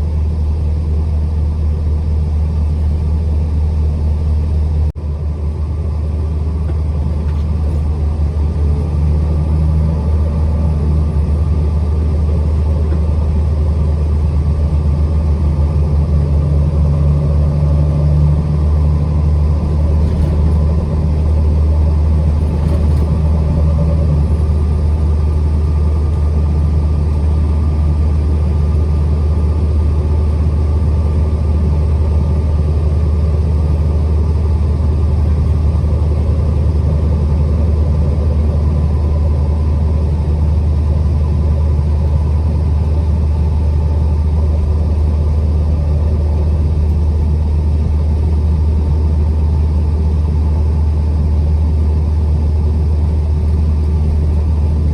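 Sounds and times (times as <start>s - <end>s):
truck engine and road rumble: 0.0s - 54.9s
shifting hum: 2.6s - 40.0s.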